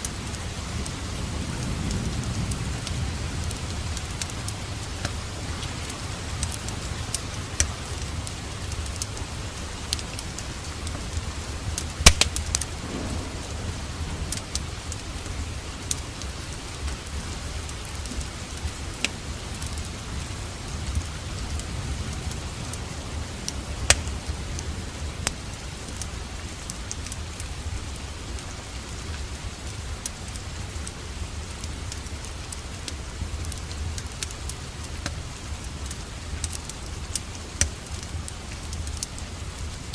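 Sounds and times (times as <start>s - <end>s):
steady rain: 0.0s - 39.9s
wood fire crackling: 0.0s - 39.9s
low rumble: 12.6s - 17.6s.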